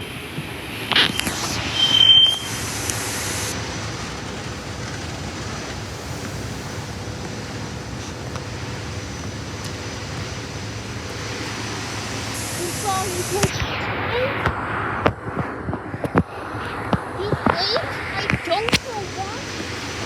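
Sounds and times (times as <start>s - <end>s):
electric train rumble and hum: 0.0s - 20.0s
brief high tone: 1.0s - 3.4s.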